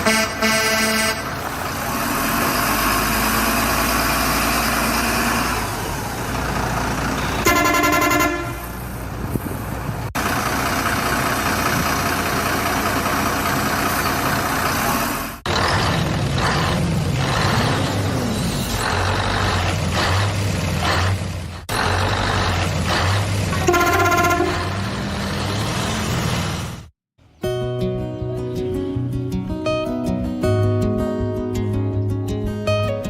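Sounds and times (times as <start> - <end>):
truck horn honking: 0.0 - 1.5, 7.1 - 8.8, 23.5 - 24.9
truck engine rumbling: 0.0 - 27.4.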